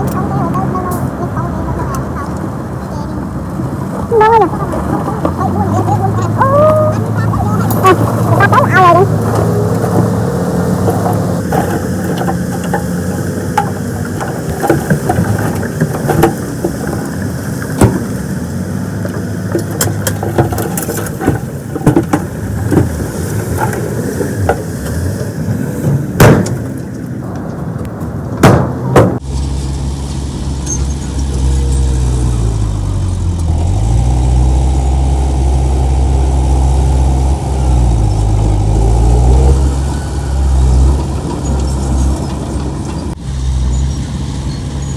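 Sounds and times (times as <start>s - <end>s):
engine revving: 0.0s - 26.9s, 28.8s - 44.9s
heavy machine diesel engines: 0.0s - 44.9s
metal clanks: 7.6s - 18.4s, 19.0s - 29.3s
loud bangs: 25.5s - 27.4s, 28.4s - 29.3s.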